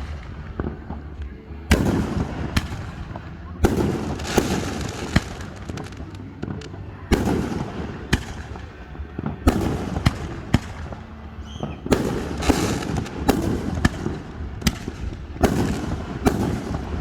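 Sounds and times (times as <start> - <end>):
fireworks bangs: 0.0 - 17.0
low rolling rumble: 0.0 - 17.0.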